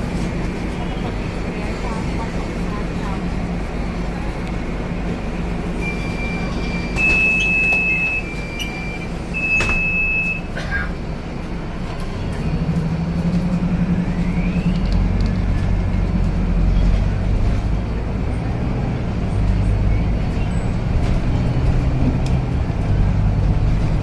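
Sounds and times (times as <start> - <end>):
bus engine running: 0.0 - 24.0.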